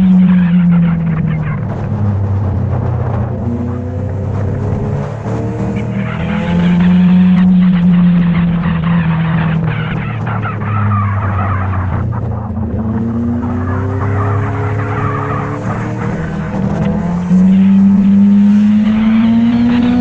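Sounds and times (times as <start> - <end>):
motorcycle engine running: 11.9 - 14.2.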